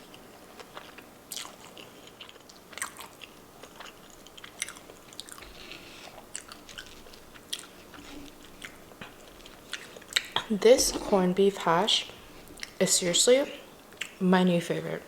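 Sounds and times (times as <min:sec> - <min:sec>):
person chewing food: 0:00.0 - 0:11.4, 0:12.0 - 0:12.8, 0:13.8 - 0:14.2
wet mouth clicks and smacks: 0:13.9 - 0:14.2.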